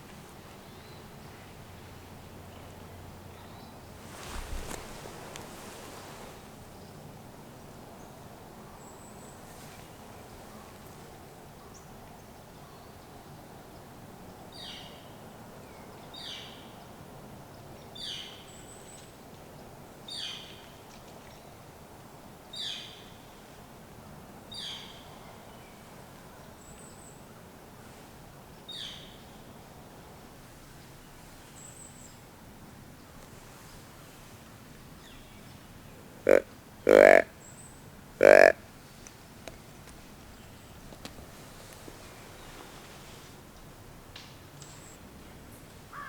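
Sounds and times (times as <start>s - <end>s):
low background hiss: 0.0s - 46.0s
bird downward-sliding call: 36.3s - 37.3s, 38.2s - 38.6s.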